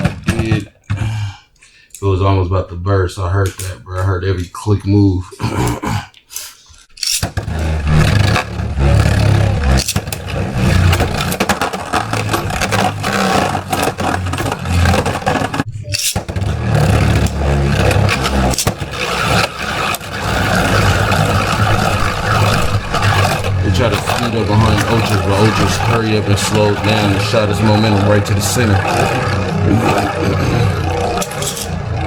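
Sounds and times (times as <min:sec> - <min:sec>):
spinning tops whirring and clashing: 0:09.8 - 0:32.0.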